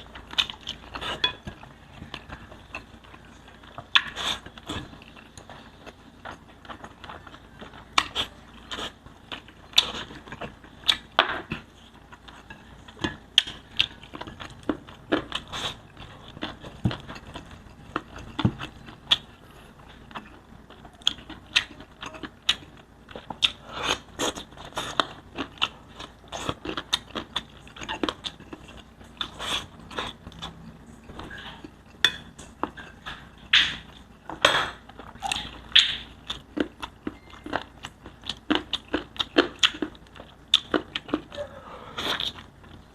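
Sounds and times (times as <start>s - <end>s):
person chewing and mouth smacking: 0.0s - 42.9s.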